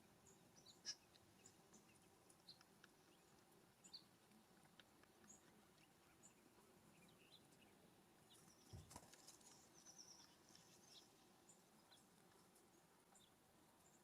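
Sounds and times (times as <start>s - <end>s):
bird wingbeats: 8.6s - 9.7s.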